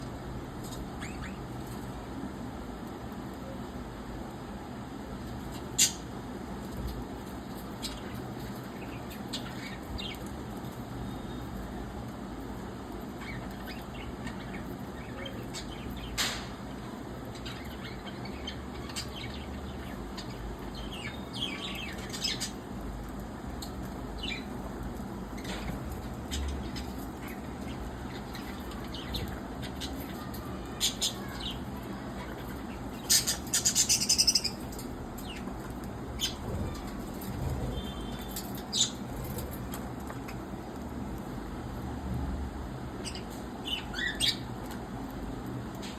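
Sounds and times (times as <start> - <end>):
budgerigars chirping: 32.2 - 35.5
wing flutters: 35.7 - 40.5.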